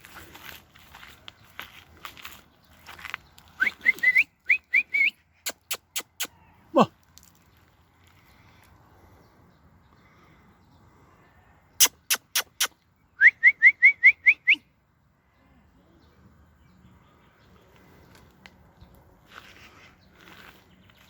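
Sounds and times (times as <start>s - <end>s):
bird chirping: 1.0s - 6.6s, 11.8s - 14.7s.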